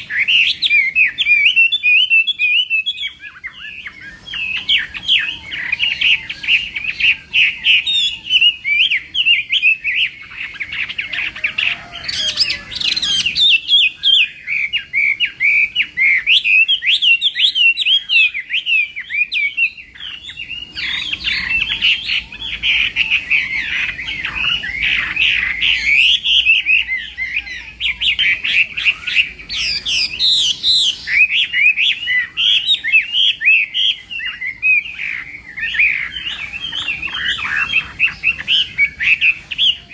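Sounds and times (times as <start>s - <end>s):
bird singing whistled song: 0.0s - 39.9s.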